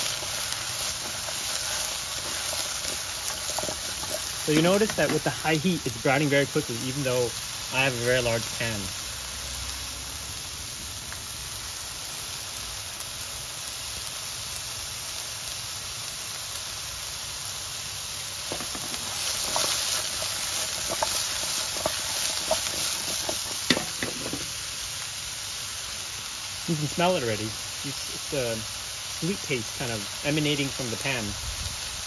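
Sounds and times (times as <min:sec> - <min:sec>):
squash sizzling in oil: 0:00.0 - 0:32.0
crackling oil pops: 0:18.4 - 0:24.6.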